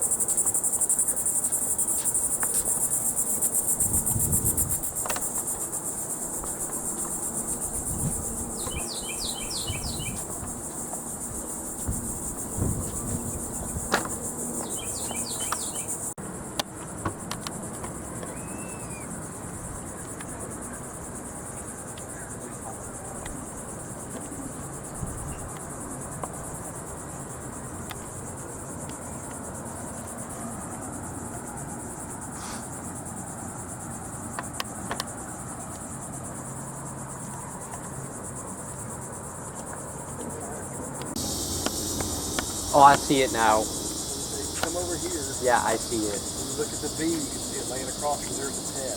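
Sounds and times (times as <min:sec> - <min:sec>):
high-pitched insect buzzing chorus: 0:00.0 - 0:16.2, 0:17.2 - 0:48.9
rapid chirping notes: 0:02.6 - 0:16.2, 0:41.1 - 0:48.9.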